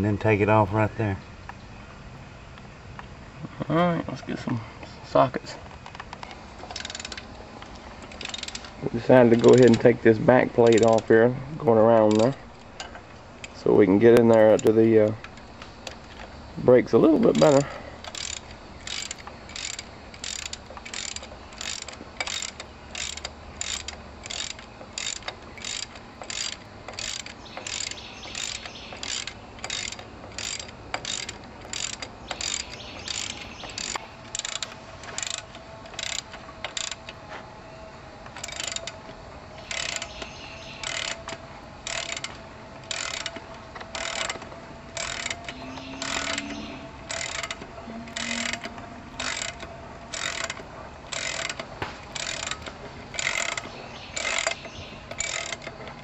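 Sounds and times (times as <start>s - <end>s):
socket ratchet clicking: 8.0s - 8.8s, 10.6s - 11.1s, 12.0s - 16.3s, 17.3s - 37.0s, 38.4s - 39.0s, 39.6s - 43.3s, 43.9s - 44.4s, 45.0s - 55.7s.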